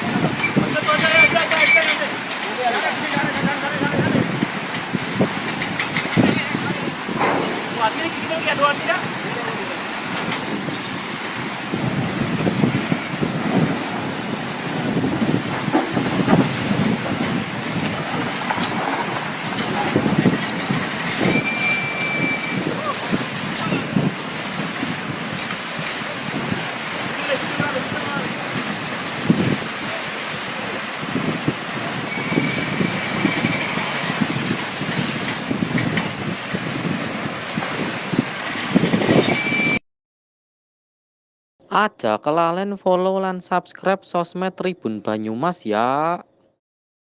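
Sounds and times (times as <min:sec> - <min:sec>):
wind buffeting microphone: 0:00.0 - 0:39.6
rough water rushing: 0:00.0 - 0:39.8.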